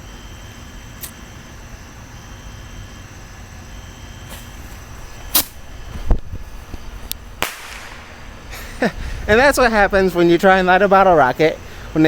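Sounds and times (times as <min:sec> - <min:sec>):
rocket hissing: 0:00.0 - 0:12.0
steady low rumble: 0:03.5 - 0:12.0
bottle rocket cracks: 0:05.3 - 0:06.2, 0:07.4 - 0:08.5.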